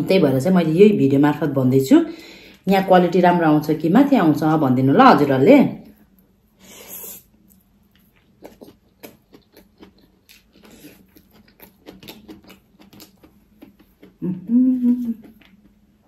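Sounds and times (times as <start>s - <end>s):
person chewing food: 6.8s - 16.0s.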